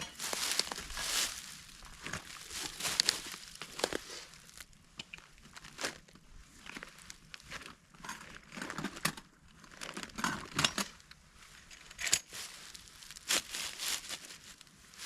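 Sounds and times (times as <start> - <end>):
footsteps on dry leaves: 0.0 - 4.8, 12.2 - 15.0.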